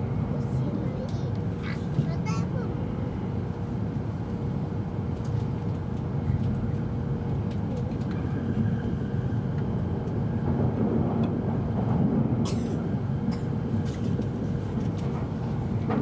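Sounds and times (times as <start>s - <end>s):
train interior rumble: 0.0s - 16.0s.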